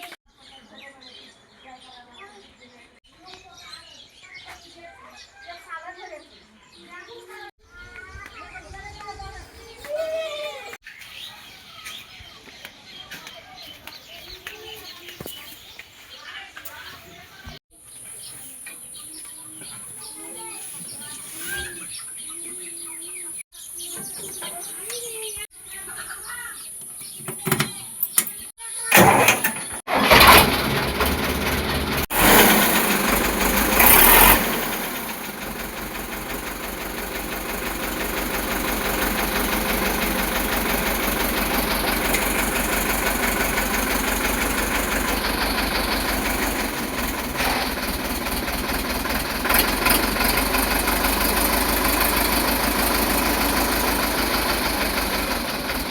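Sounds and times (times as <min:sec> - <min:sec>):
tractor diesel engine starting: 0:28.8 - 0:55.9.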